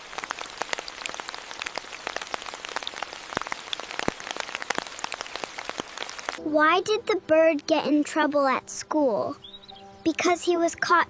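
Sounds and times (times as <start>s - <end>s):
rain drops pattering: 0.0s - 6.4s.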